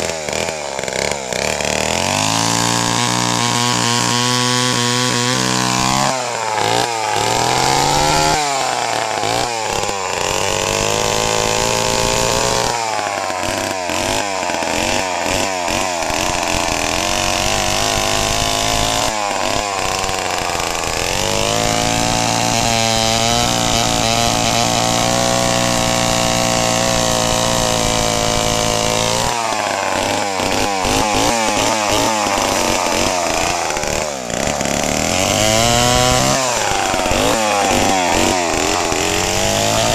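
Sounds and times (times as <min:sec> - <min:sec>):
chainsaw running at high revs: 0:00.0 - 0:39.9.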